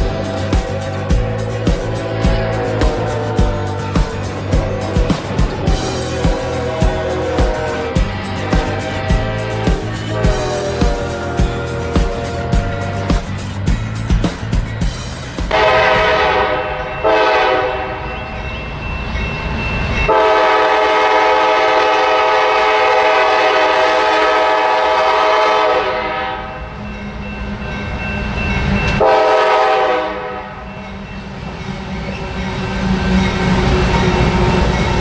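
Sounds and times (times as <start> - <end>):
locomotive air horn blasts: 0.0 - 13.1, 15.5 - 18.2, 20.1 - 26.6, 29.0 - 30.6
locomotive engine rumble: 0.0 - 35.0.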